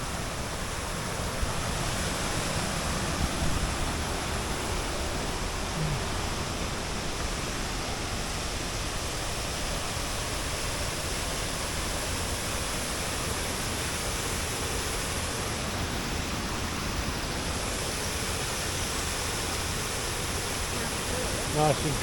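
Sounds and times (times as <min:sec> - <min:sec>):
rushing water: 0:00.0 - 0:22.0.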